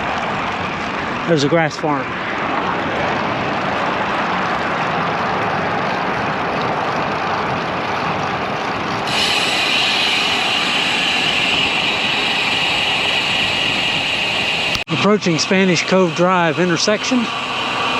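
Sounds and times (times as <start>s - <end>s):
road noise: 0.0s - 17.9s
rushing wind: 0.0s - 17.9s
steady high hiss: 9.1s - 17.9s.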